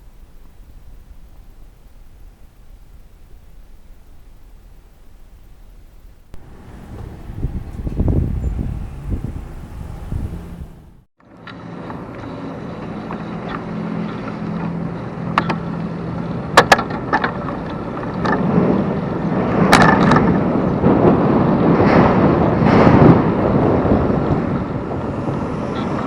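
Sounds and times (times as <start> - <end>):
bike clicks and rattles: 6.2 - 10.7
road and wind noise: 6.3 - 26.0.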